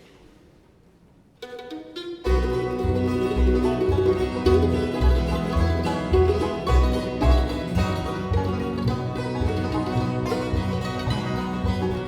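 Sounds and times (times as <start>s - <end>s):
bluegrass band playing: 1.4s - 12.0s
plucked notes: 1.4s - 12.0s
steady bass beat: 2.4s - 12.0s.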